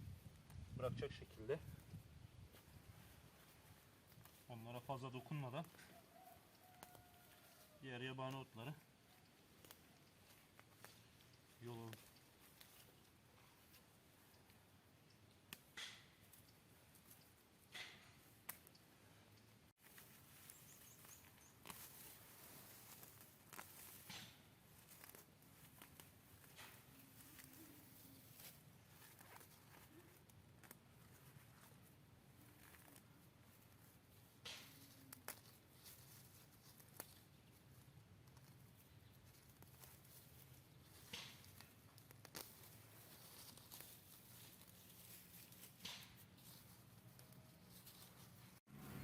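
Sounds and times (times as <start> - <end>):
weeds being pulled rustling: 0.0 - 18.8, 19.7 - 49.0
bird chirping: 20.3 - 21.7.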